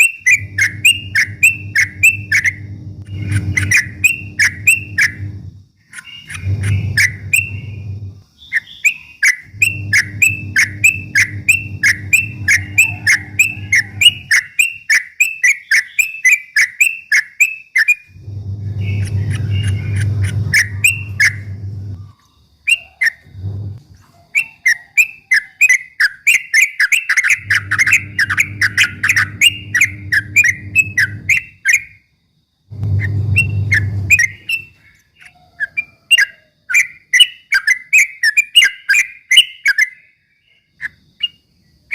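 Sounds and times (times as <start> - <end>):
bulbul chirping song: 0.0 - 32.1, 32.8 - 41.5
low hum: 0.3 - 5.7, 6.3 - 8.2, 9.5 - 14.3, 18.2 - 22.1, 23.2 - 23.8, 27.4 - 31.4, 32.7 - 34.7.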